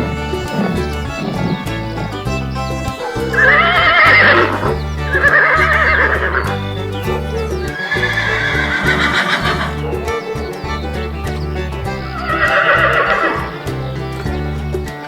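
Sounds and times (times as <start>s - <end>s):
background music with bass: 0.0s - 15.0s
horse neighing: 3.1s - 14.6s.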